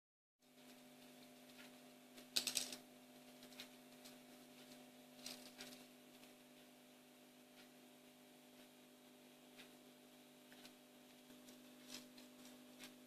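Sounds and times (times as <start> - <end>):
low steady hum: 0.4 - 13.0
fidget spinner clicking and rattling: 0.6 - 6.3.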